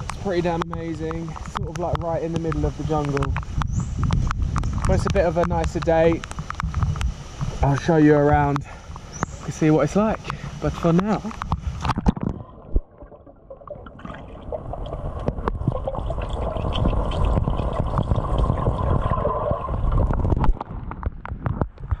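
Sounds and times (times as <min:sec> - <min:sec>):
pool water sloshing and splashing: 0:12.0 - 0:20.9.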